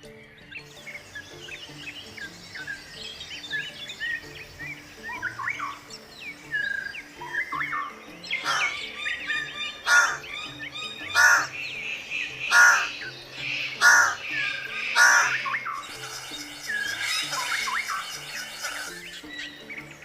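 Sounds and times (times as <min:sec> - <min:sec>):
bird chirps: 0:00.0 - 0:20.0
faint background music: 0:00.0 - 0:20.0
bird loud call: 0:06.8 - 0:19.0.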